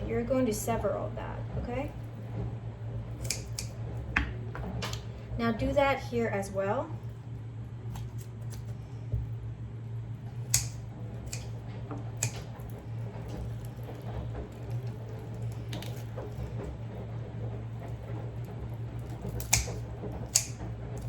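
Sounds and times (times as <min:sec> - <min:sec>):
steady low hum: 0:00.0 - 0:21.0
scissors snipping chicken: 0:03.2 - 0:03.8, 0:10.5 - 0:11.6, 0:12.2 - 0:13.7, 0:19.3 - 0:20.6.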